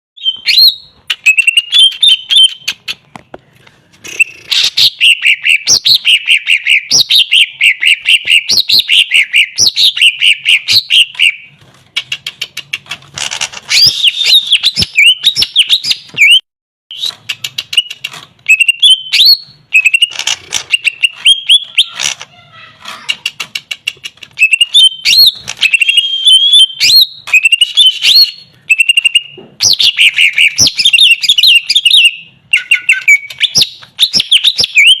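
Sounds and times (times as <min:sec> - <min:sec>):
sharp clicks: 0:11.9 - 0:13.8, 0:17.1 - 0:18.4, 0:22.9 - 0:24.4
bird singing whistled chattering phrases: 0:13.7 - 0:20.1, 0:23.0 - 0:35.0.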